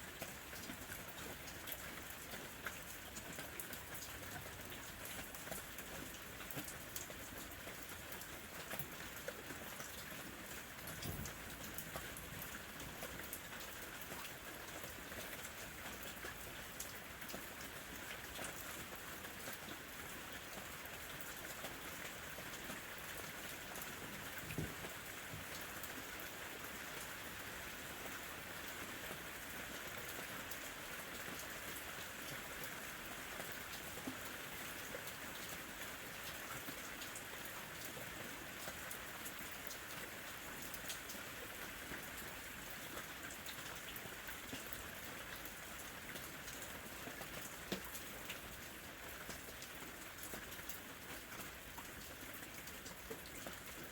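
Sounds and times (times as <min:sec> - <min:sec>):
light rain hiss: 0:00.0 - 0:53.9
raindrops tapping on surface: 0:00.1 - 0:19.8, 0:20.4 - 0:27.1, 0:46.1 - 0:48.4.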